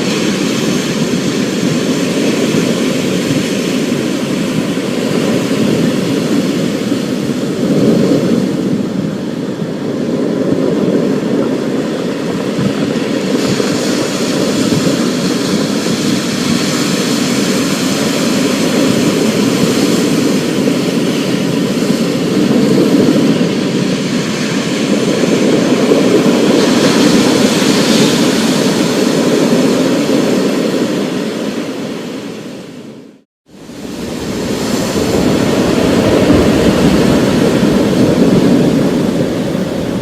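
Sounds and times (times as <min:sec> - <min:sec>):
thunder rumble: 0:33.5 - 0:40.0.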